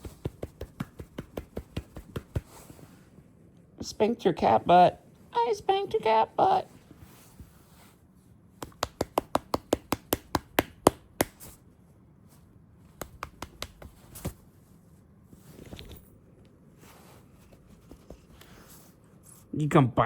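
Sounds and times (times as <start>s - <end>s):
hand patting a cat: 0.0s - 3.0s, 8.6s - 11.6s, 12.9s - 14.5s.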